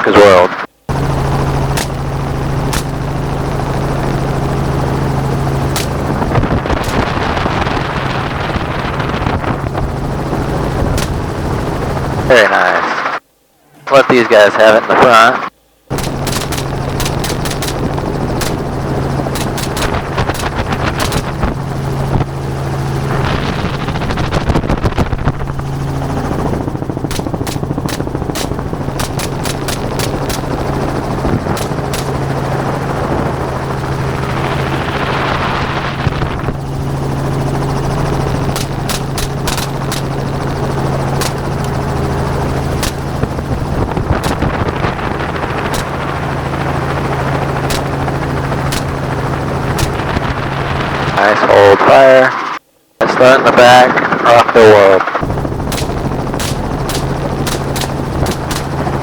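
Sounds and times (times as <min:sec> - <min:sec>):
helicopter flying: 0:00.0 - 0:59.0
gunshots cracking: 0:01.7 - 0:02.1, 0:02.7 - 0:03.0, 0:05.7 - 0:07.7, 0:10.9 - 0:11.3, 0:15.9 - 0:21.6, 0:27.1 - 0:32.6, 0:38.4 - 0:41.9, 0:42.8 - 0:43.4, 0:44.1 - 0:46.3, 0:47.6 - 0:49.1, 0:49.7 - 0:50.4, 0:55.6 - 0:59.0.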